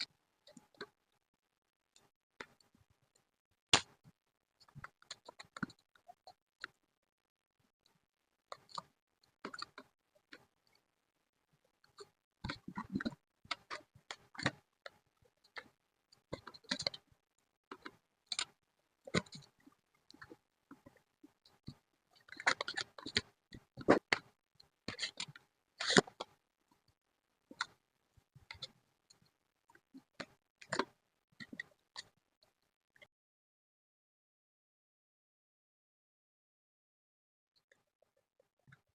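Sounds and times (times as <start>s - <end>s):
taps and clicks of craft supplies: 3.8s - 6.8s.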